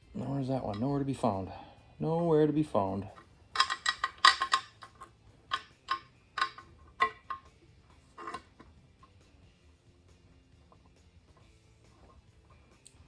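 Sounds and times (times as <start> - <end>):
metal bolts clinking: 0.2 - 1.2, 3.0 - 9.2.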